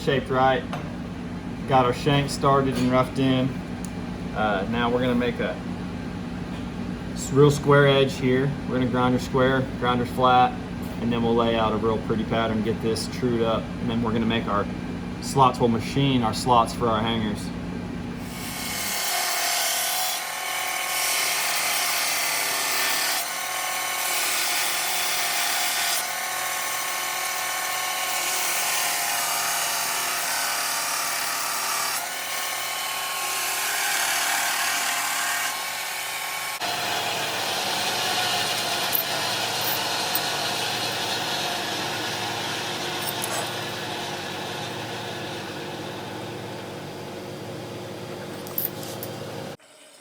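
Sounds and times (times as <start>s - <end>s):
power grinder grinding steel: 18.2s - 46.3s.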